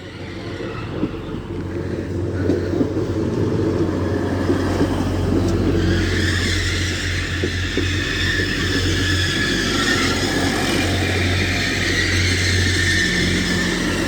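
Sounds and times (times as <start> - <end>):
train diesel engines running: 0.0 - 14.0.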